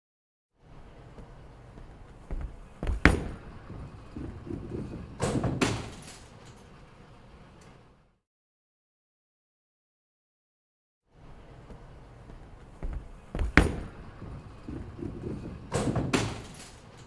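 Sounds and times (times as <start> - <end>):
sharp knocks and thumps: 2.1 - 6.0, 12.6 - 16.5.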